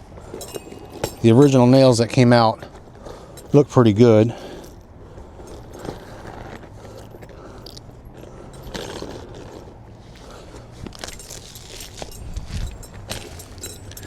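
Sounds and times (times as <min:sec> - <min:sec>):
steady low hum: 0:00.0 - 0:14.0
light scraping of nails: 0:04.5 - 0:14.0.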